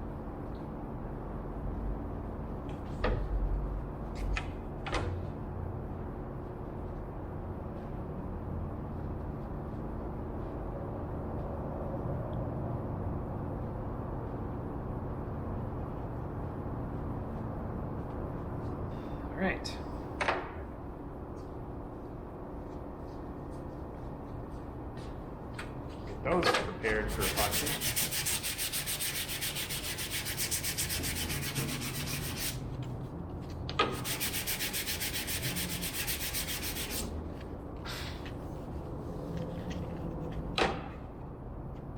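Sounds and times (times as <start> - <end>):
hand sanding wood: 27.0 - 32.6, 33.9 - 37.2.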